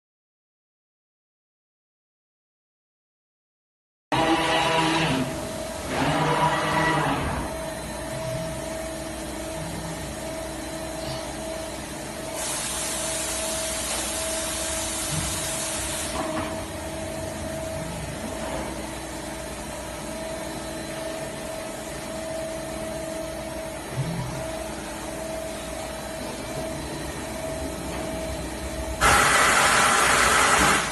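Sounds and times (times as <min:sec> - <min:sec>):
machine hum with whine: 0:04.1 - 0:30.9
loud hiss: 0:29.0 - 0:30.9.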